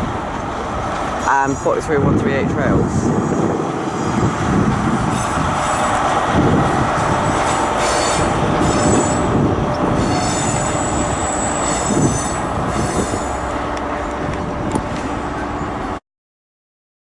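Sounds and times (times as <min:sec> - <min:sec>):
train rumbling over track: 0:00.0 - 0:16.0
high wheel squeals: 0:01.1 - 0:01.8, 0:02.9 - 0:04.4, 0:05.0 - 0:14.2.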